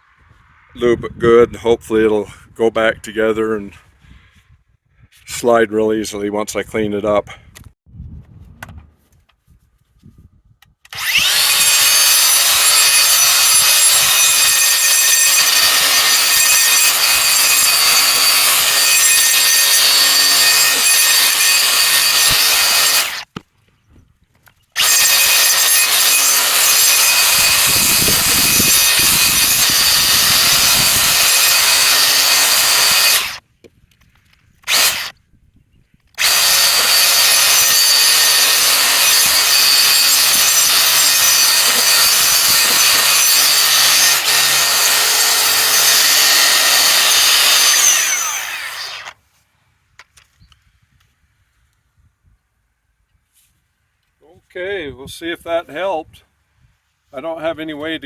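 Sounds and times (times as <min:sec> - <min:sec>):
wire brush grinder scouring metal: 0:11.0 - 0:23.3, 0:24.8 - 0:33.4, 0:34.6 - 0:35.1, 0:36.2 - 0:49.2.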